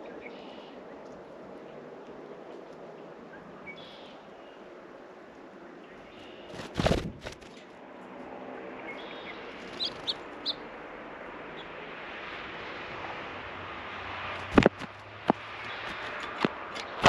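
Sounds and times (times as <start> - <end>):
small bird chirping: 3.3 - 4.6, 8.8 - 10.7
steady rushing background: 6.5 - 7.7, 9.5 - 10.7, 14.3 - 17.0.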